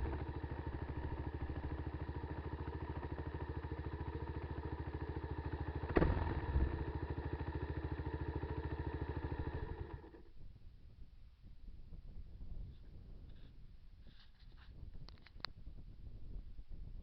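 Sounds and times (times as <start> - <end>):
motorcycle engine idling: 0.0 - 10.5.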